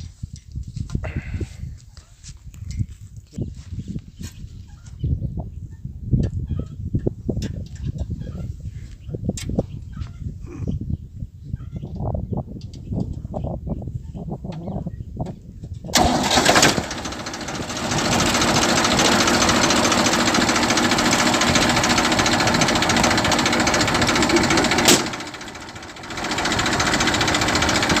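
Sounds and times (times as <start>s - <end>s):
tractor engine knocking: 16.0s - 28.0s
sharp bang: 24.8s - 25.2s.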